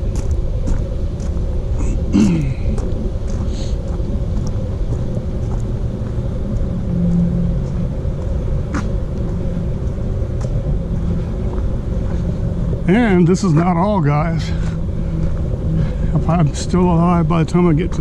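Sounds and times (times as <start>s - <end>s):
faint hum: 0.0s - 18.0s
low rumble: 0.0s - 18.0s.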